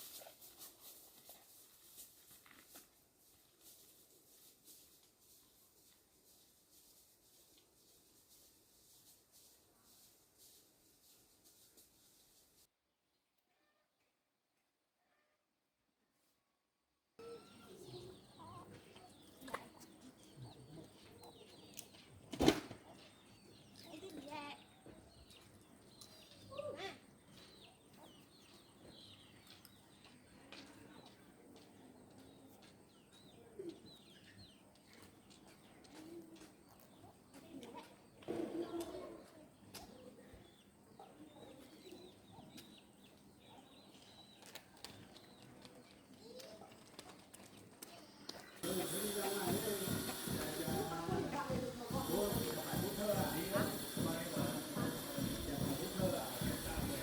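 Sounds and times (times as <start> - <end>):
small birds chirping: 17.2 - 57.0.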